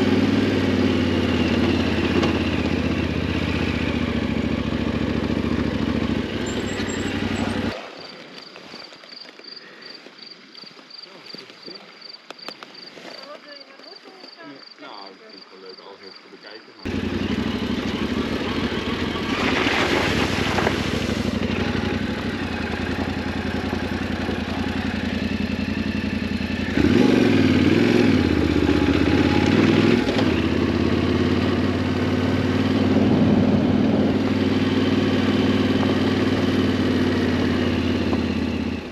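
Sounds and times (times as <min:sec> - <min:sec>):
motorcycle engine revving: 0:00.0 - 0:07.8, 0:16.8 - 0:38.9.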